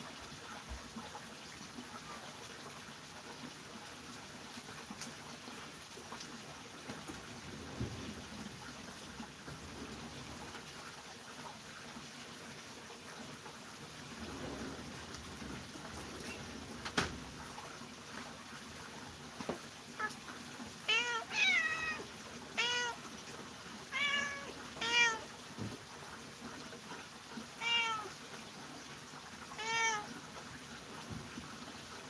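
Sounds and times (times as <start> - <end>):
cat meowing: 20.0 - 20.2, 20.9 - 23.0, 23.9 - 25.3, 27.6 - 28.1, 29.6 - 30.1.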